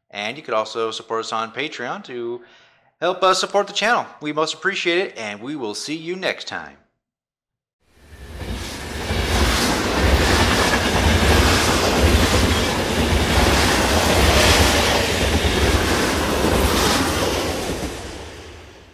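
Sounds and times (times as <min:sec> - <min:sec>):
train running on rails: 0:08.0 - 0:18.9.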